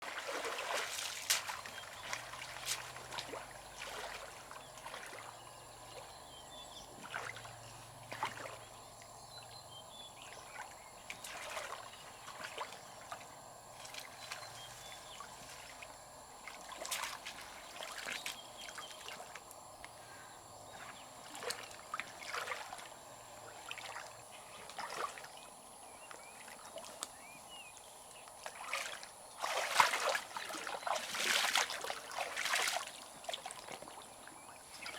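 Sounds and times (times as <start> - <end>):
river water trickling: 0.0 - 34.9
brief clicks and splashes: 0.4 - 3.4, 16.7 - 17.4.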